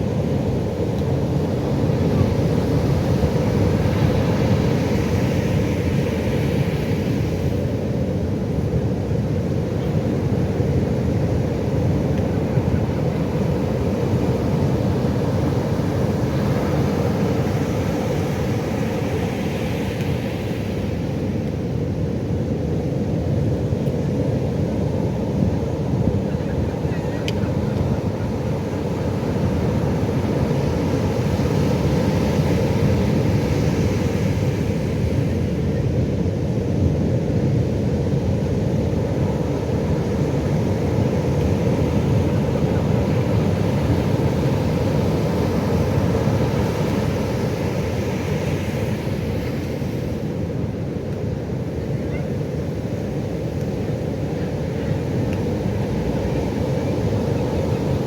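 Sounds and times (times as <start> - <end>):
surf waves breaking: 38.2 - 58.0.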